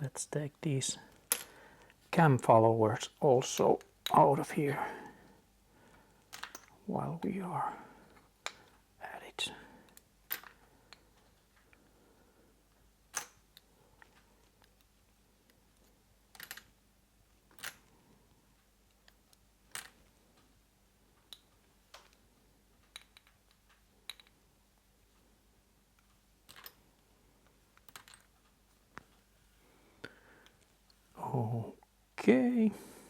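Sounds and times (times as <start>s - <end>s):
metal parts clicking and tapping: 6.3s - 6.8s, 17.5s - 17.9s, 22.8s - 24.4s, 26.0s - 26.8s, 27.7s - 29.2s.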